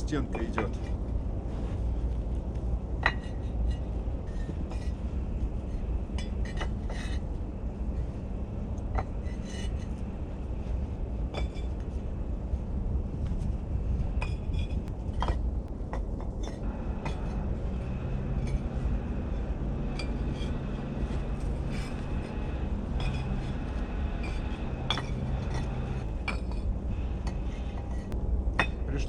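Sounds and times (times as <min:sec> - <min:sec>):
low steady hum: 0:00.0 - 0:29.0
trowel clinking against bricks: 0:03.0 - 0:03.8, 0:19.8 - 0:28.8.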